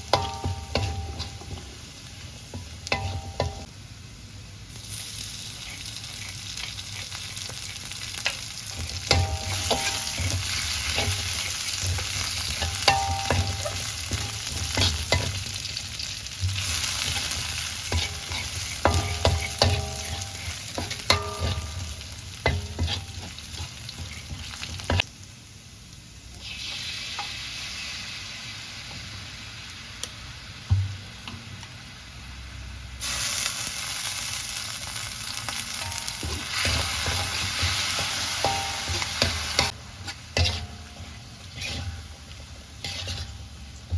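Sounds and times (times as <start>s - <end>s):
food sizzling in oiled pan: 0.0s - 43.9s
metal spatula clinking on pan: 0.1s - 1.4s, 9.1s - 10.4s, 11.0s - 15.4s, 17.9s - 25.0s, 35.7s - 39.8s.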